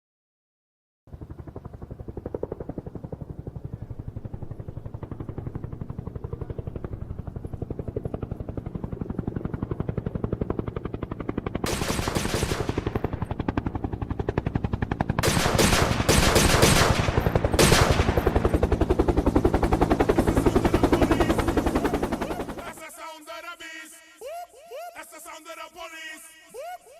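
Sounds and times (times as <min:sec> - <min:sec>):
automatic gunfire: 0:11.6 - 0:13.0, 0:15.2 - 0:18.5.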